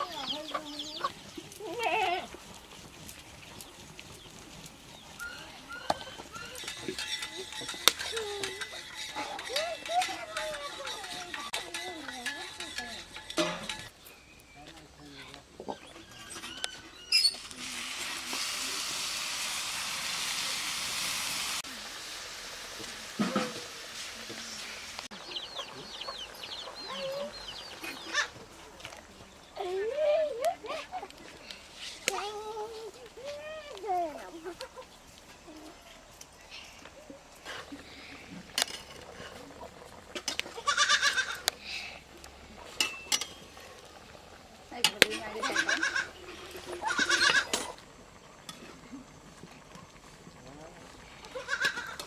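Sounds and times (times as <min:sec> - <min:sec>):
goat bleating: 0:01.6 - 0:02.4, 0:40.5 - 0:41.5, 0:45.4 - 0:46.1, 0:46.8 - 0:47.5, 0:51.3 - 0:52.0
hot oil sizzling in a pan: 0:17.1 - 0:28.4, 0:38.4 - 0:49.3.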